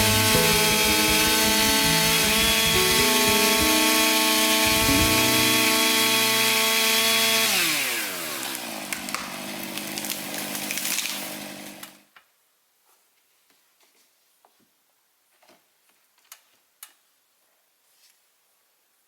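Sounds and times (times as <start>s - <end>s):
chainsaw revving and idling: 0.0s - 12.0s.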